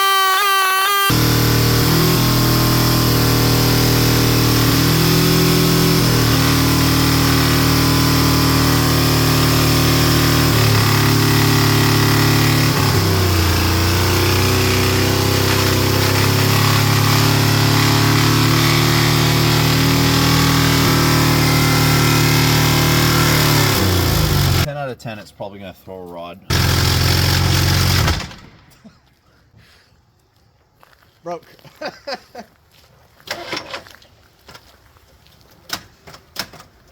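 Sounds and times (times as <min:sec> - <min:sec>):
car engine running: 0:01.1 - 0:24.7, 0:26.5 - 0:28.6.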